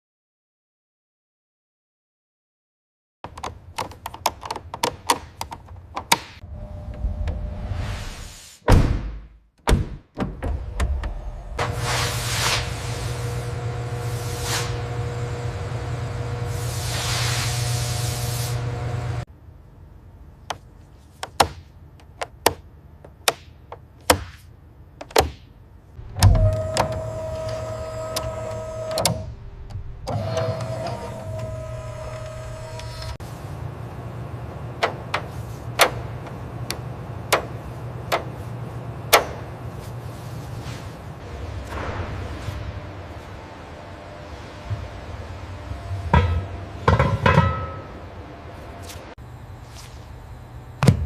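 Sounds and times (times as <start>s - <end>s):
machine hum: 6.4s - 7.9s, 10.4s - 20.3s, 26.0s - 51.0s.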